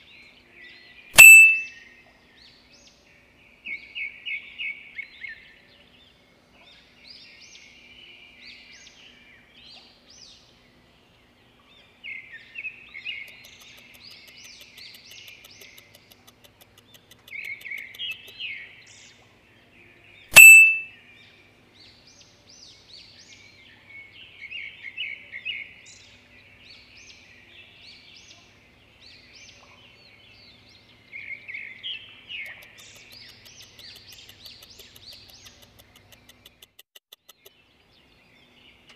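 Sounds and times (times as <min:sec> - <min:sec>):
songbird chirping: 0:00.0 - 0:38.9
loud short ping: 0:01.2 - 0:01.7, 0:20.3 - 0:20.9.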